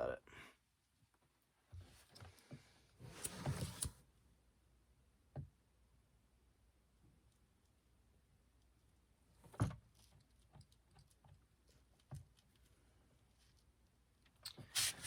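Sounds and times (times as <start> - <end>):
light clicks and rustles: 9.3 - 15.0.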